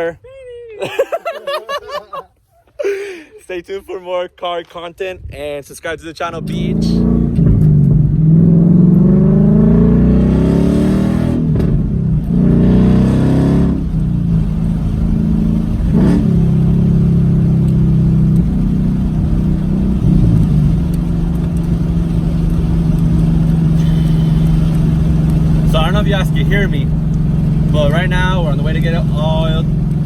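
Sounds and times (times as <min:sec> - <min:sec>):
car engine accelerating: 0:06.3 - 0:30.0.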